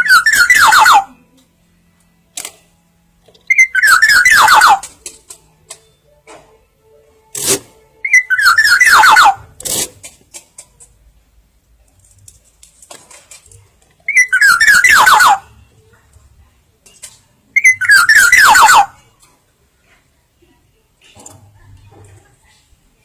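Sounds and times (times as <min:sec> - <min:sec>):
bird whistled call: 0:00.0 - 0:01.1, 0:03.5 - 0:04.9, 0:08.1 - 0:09.4, 0:14.1 - 0:15.5, 0:17.6 - 0:18.9.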